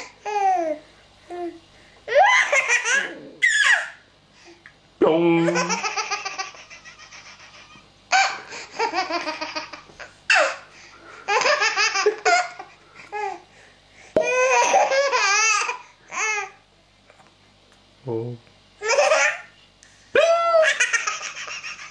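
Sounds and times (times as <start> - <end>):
baby laughing: 2.1 - 4.0, 5.5 - 10.6, 11.3 - 13.4, 14.2 - 16.6, 18.8 - 19.5, 20.6 - 21.9.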